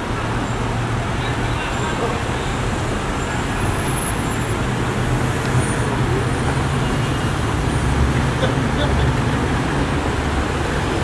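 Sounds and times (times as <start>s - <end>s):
passing road traffic: 0.0s - 11.0s.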